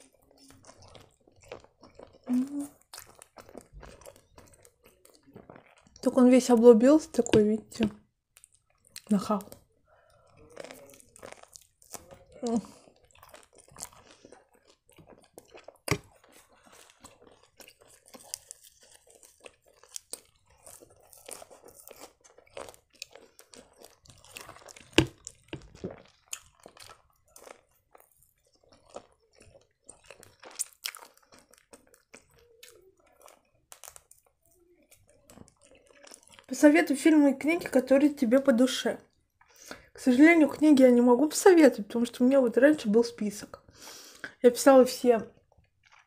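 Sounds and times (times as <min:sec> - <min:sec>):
crunchy chewing: 0:00.0 - 0:06.1, 0:07.2 - 0:36.6, 0:45.3 - 0:46.0
wet mouth sounds: 0:00.0 - 0:06.1, 0:07.1 - 0:09.6, 0:10.2 - 0:36.6, 0:39.4 - 0:40.0, 0:43.6 - 0:44.4.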